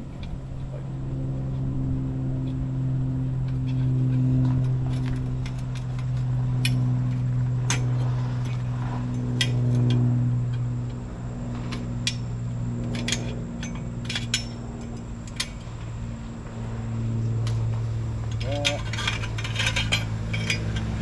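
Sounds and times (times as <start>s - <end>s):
steady low hum: 0.0s - 21.0s
metallic clinks of hand tools: 18.3s - 21.0s.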